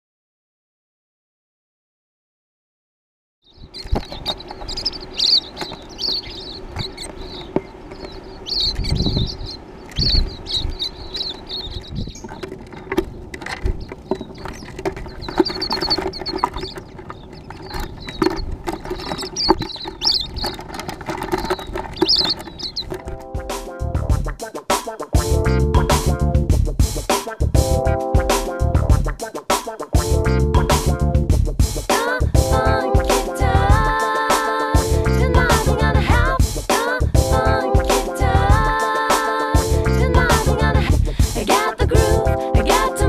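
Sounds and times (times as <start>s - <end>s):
small birds chirping: 3.4s - 31.1s
low thumps: 3.8s - 24.4s, 25.2s - 29.2s.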